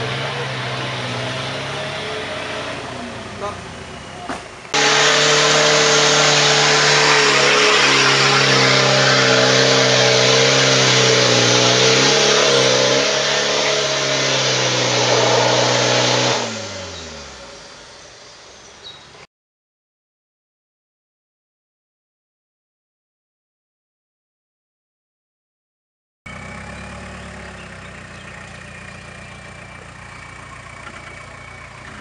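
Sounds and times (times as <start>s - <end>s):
engine revving at high revs: 0.0s - 3.9s, 4.7s - 17.8s, 26.3s - 32.0s.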